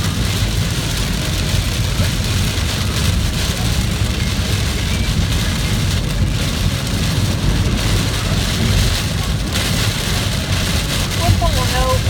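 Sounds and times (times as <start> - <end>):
heavy rain hissing: 0.0 - 12.0
low rumble: 0.0 - 12.0.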